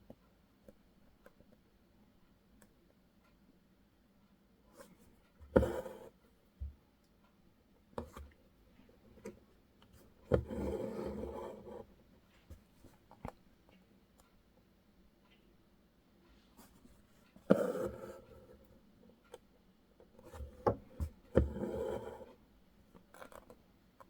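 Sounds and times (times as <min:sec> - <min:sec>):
thread rasping through cloth: 0:05.5 - 0:06.1, 0:09.2 - 0:11.8.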